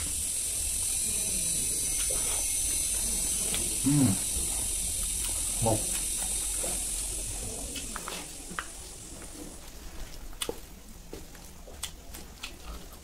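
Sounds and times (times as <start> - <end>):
steady hiss: 0.0 - 11.6
person chewing food: 1.7 - 13.0
wet mouth sounds: 1.9 - 8.8.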